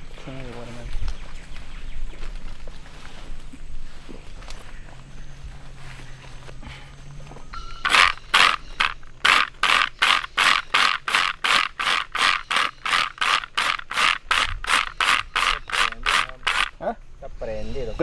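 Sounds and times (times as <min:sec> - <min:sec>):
rapid scraping strokes: 0:07.8 - 0:16.8.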